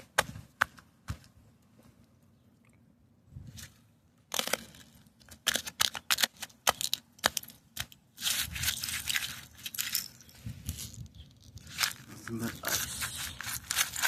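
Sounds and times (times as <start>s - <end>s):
bare feet crunching on icy snow: 11.6s - 14.0s.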